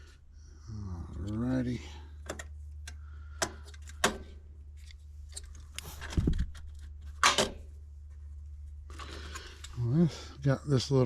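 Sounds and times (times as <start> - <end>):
steady low hum: 0.0 - 11.0
small parts clicking and clattering: 2.2 - 7.7.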